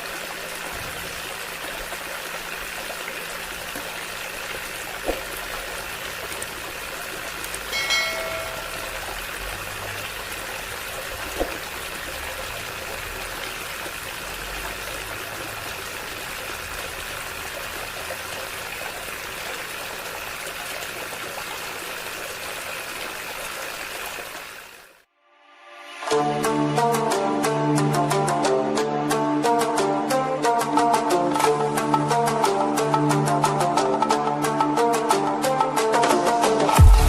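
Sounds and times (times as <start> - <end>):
water pump running water: 0.0 - 25.0.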